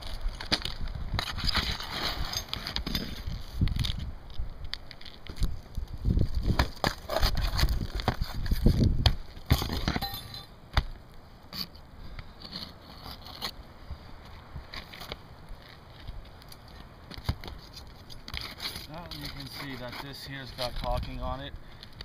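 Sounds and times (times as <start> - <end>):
shingles scraping and crackling: 0.0 - 4.0, 4.8 - 8.8, 12.3 - 13.6, 14.7 - 22.0.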